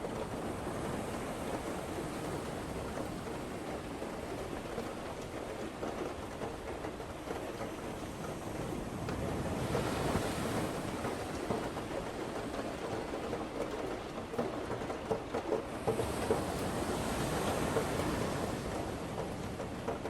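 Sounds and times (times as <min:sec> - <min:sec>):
wind: 0:00.0 - 0:20.0.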